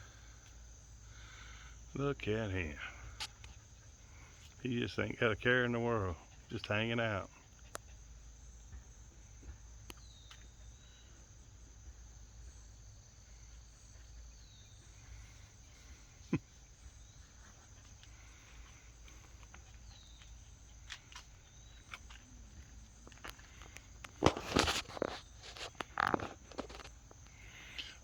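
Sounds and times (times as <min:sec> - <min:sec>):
insects droning: 0:00.0 - 0:28.0
faint clicks: 0:17.8 - 0:28.0.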